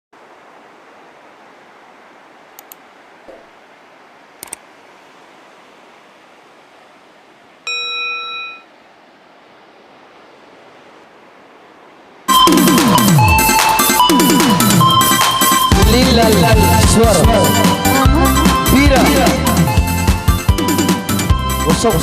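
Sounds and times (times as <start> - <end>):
faint clicks: 2.5 - 3.5, 4.4 - 4.7
electronic tone: 7.7 - 8.7, 12.3 - 21.1.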